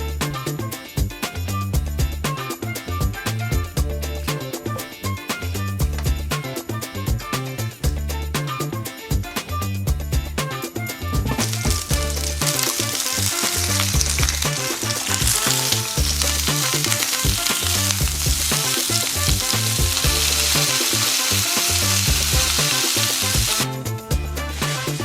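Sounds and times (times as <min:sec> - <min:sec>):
music with bass beat: 0:00.0 - 0:25.0
meat sizzling in a frying pan: 0:11.2 - 0:25.0.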